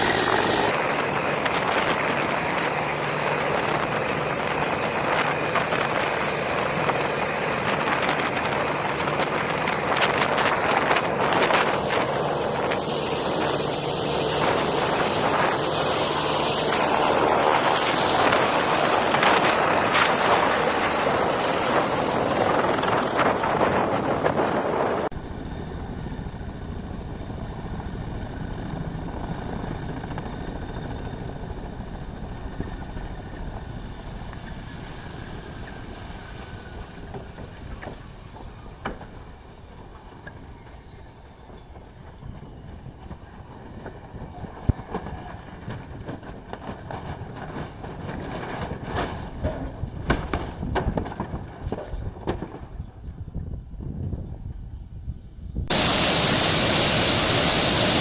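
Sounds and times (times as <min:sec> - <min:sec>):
helicopter rotor and engine: 0:00.0 - 0:58.0.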